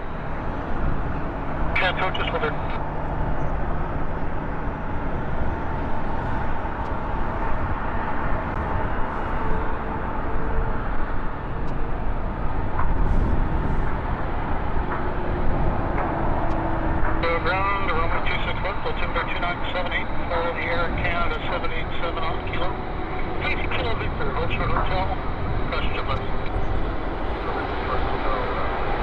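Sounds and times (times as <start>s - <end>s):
faint steady whine: 0.0s - 29.0s
jet engines rushing: 0.0s - 29.0s
wind buffeting microphone: 0.0s - 29.0s.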